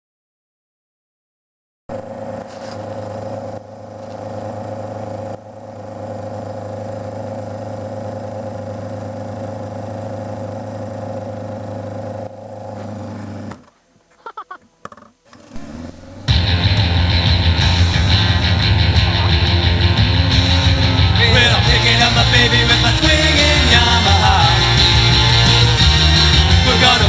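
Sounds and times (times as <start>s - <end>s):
motorcycle engine running: 1.9s - 27.0s
short clatters: 2.3s - 5.0s.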